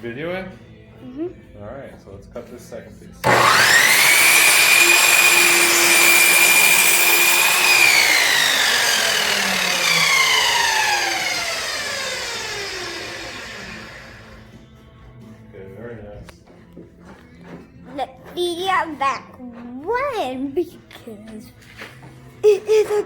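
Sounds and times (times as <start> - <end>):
electric power saw whining: 3.2 - 14.6
saw cutting through wood: 3.2 - 14.6.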